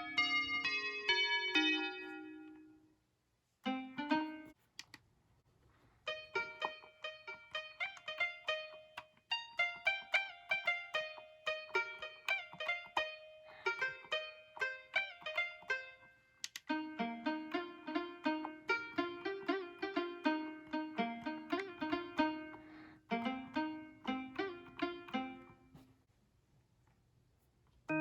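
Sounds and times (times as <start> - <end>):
mini keyboard notes: 3.6 - 4.9, 6.1 - 25.8.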